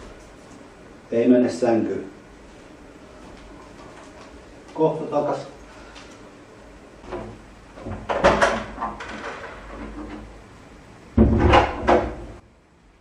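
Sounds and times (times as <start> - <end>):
knocks and bangs: 11.2 - 12.4.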